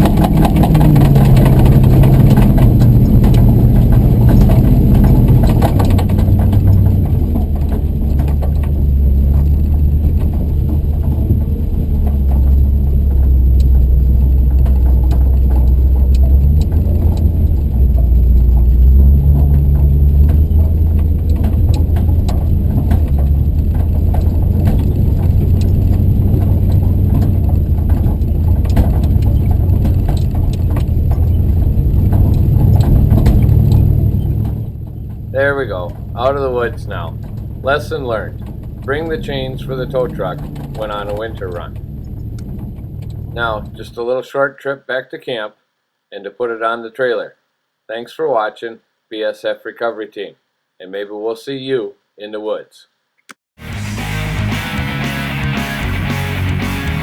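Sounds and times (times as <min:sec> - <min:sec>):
clicks and rattles: 0:00.0 - 0:43.8
vehicle engine running: 0:00.0 - 0:44.0, 0:53.6 - 0:57.0.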